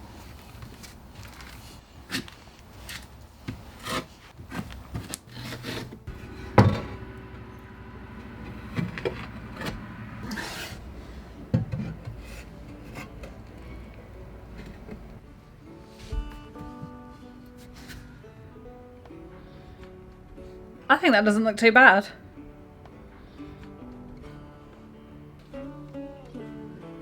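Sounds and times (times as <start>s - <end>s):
tile adhesive scraping: 1.5s - 6.8s, 9.6s - 10.9s.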